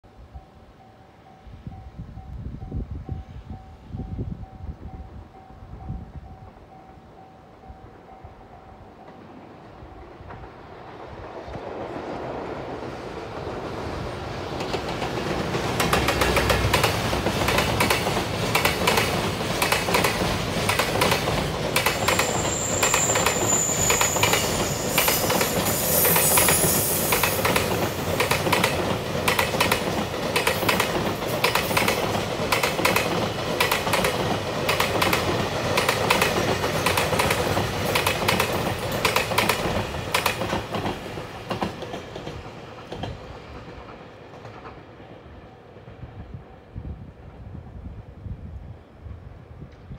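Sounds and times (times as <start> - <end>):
freight train rumble: 0.1 - 49.9
wheels clacking over rail joints: 14.5 - 45.0
high squeal: 21.9 - 27.4.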